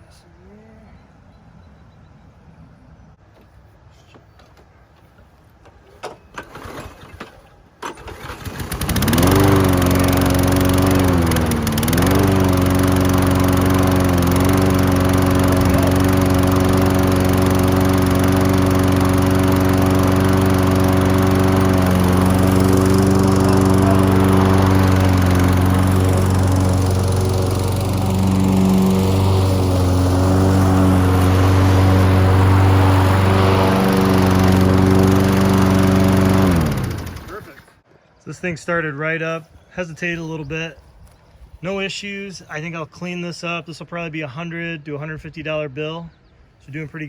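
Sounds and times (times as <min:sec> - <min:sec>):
lawn mower engine running: 0:06.3 - 0:37.7.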